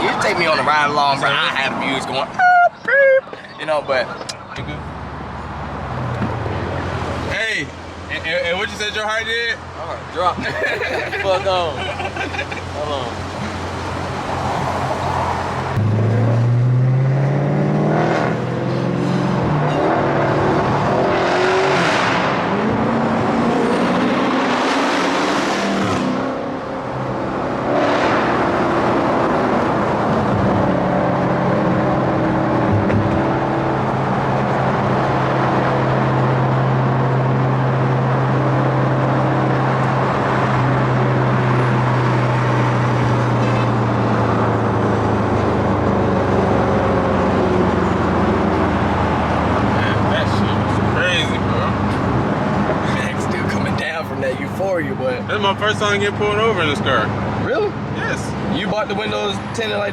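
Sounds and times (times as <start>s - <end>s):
car engine running: 10.0s - 16.6s, 46.7s - 59.9s.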